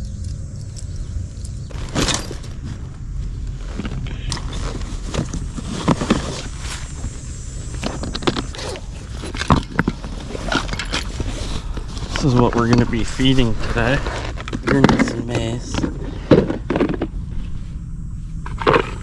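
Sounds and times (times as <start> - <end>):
steady low rumble: 0.0 - 19.0
fishing gear clicks and scrapes: 7.6 - 17.1.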